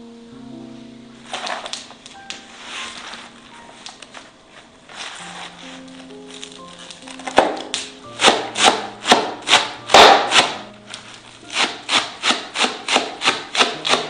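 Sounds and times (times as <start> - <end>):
handsaw sawing wood: 8.2 - 10.6, 11.4 - 14.0.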